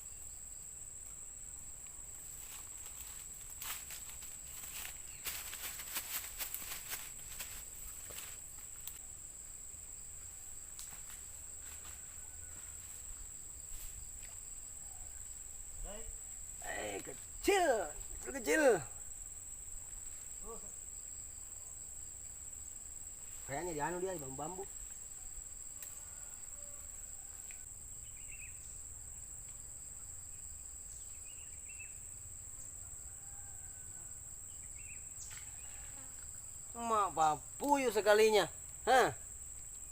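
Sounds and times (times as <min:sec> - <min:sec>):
insects chirring: 0:00.0 - 0:39.9
insects singing high-pitched: 0:13.6 - 0:21.8, 0:34.5 - 0:39.9.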